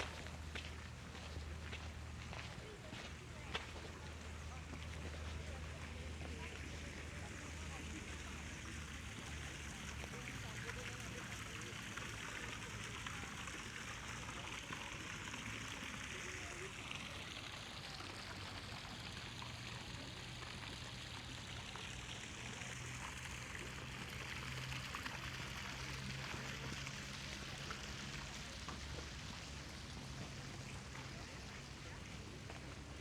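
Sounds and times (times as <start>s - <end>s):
fountain water splashing: 0.0s - 33.0s.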